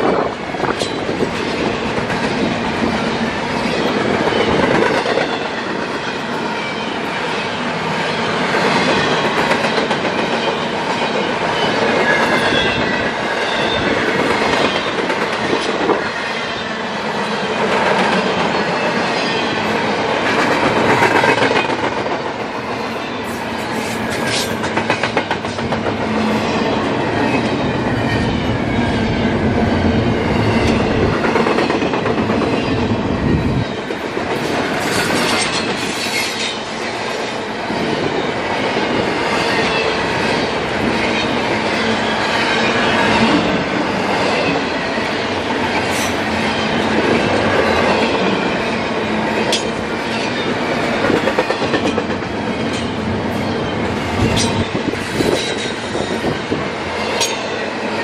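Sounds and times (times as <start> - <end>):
train wheels rumbling and rattling: 0.0 - 58.0.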